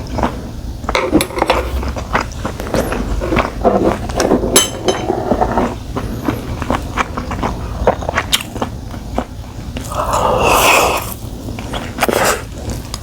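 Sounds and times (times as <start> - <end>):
wet chewing and mouth smacks: 5.6 - 10.3.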